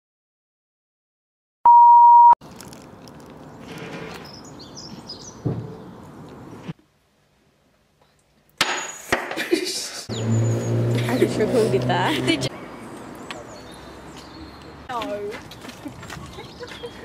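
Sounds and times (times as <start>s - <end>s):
loud electronic beep: 1.7s - 2.4s
birds chirping: 3.4s - 6.7s, 10.1s - 17.0s.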